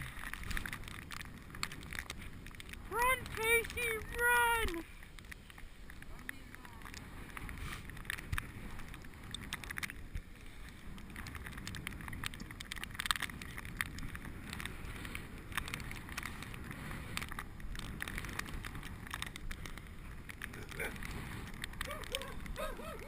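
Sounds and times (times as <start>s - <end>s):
bike clicks and rattles: 0.0s - 23.0s
wind and tyres rumbling: 0.0s - 23.0s.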